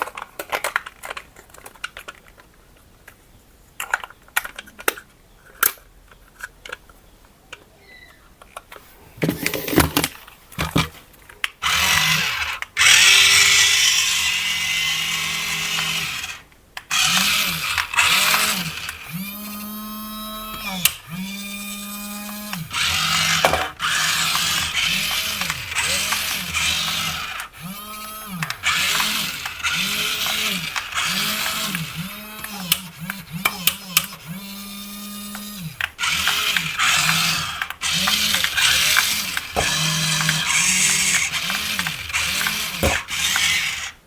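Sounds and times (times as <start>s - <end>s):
toy electric motor whirring: 9.0s - 10.9s, 11.6s - 44.0s.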